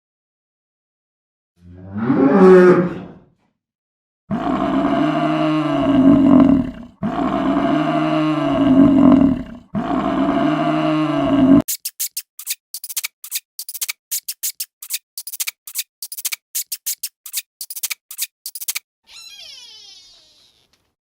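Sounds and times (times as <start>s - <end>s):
long drawn-out animal call: 4.3s - 11.6s, 19.1s - 20.7s
animal call: 19.1s - 20.8s.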